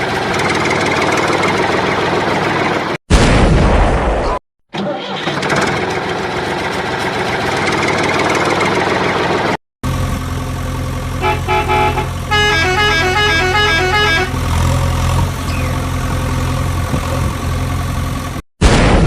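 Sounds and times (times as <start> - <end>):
low engine hum: 5.7 - 18.4
musical horn beeping tune: 11.2 - 14.7.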